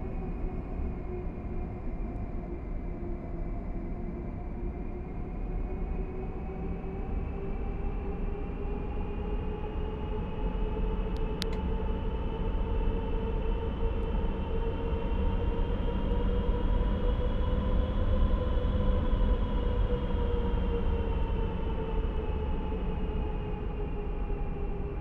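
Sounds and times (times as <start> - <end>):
jet engine low rumble: 7.0 - 25.0.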